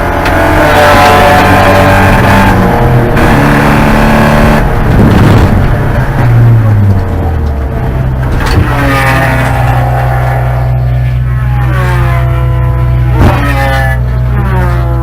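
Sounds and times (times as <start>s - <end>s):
race car engine revving: 0.0s - 15.0s.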